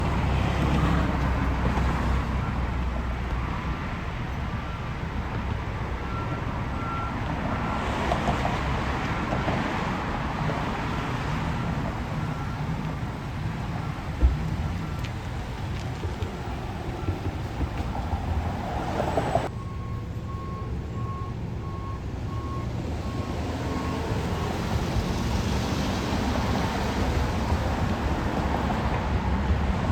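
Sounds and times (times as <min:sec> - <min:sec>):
fire truck engine rumbling: 0:00.0 - 0:29.9
faint reversing beeps: 0:06.0 - 0:07.9, 0:11.6 - 0:12.9, 0:19.5 - 0:24.6.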